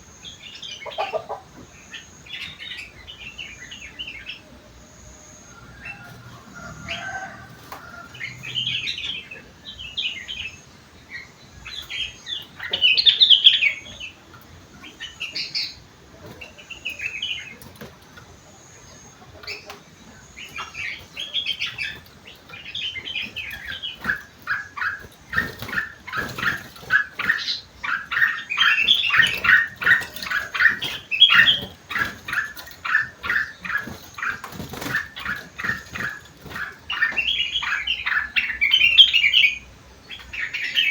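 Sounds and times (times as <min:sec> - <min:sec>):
bird singing: 0:00.0 - 0:40.9.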